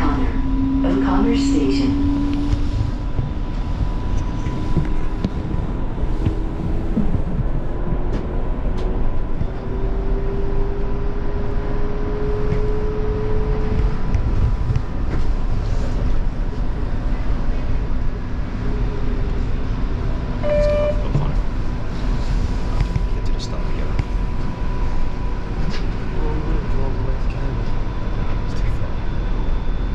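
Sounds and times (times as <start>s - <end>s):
wheels rumbling on track: 0.0s - 29.9s
short beep: 20.4s - 21.2s.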